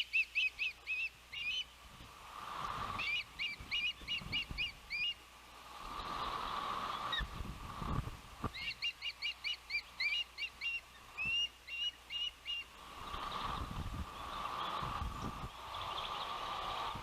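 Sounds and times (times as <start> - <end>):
osprey whistled chirps: 0.0 - 1.8, 2.9 - 5.2, 8.5 - 16.8
wind buffeting microphone: 5.8 - 8.7, 12.8 - 17.0.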